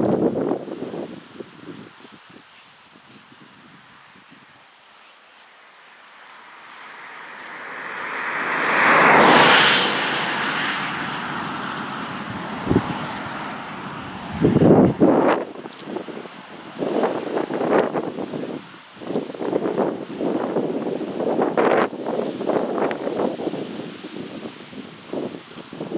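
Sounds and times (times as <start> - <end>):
wind buffeting microphone: 0.0 - 4.6, 7.3 - 25.9
vehicle passing by: 6.4 - 15.5.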